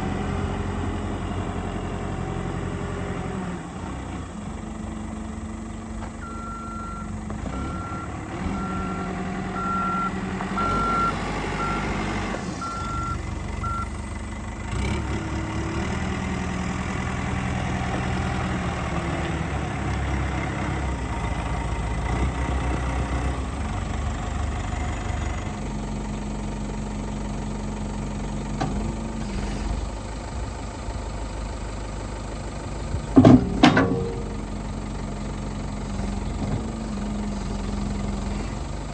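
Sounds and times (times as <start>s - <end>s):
backhoe diesel engine running: 0.0s - 38.9s
loud knocks: 33.2s - 34.5s.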